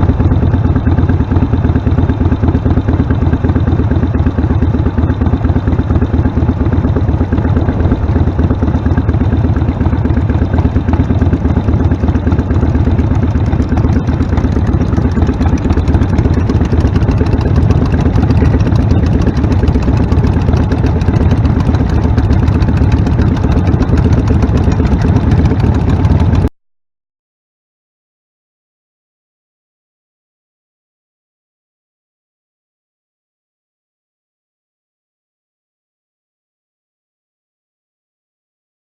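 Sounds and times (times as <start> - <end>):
motorcycle engine deep pulsing: 0.0 - 26.5.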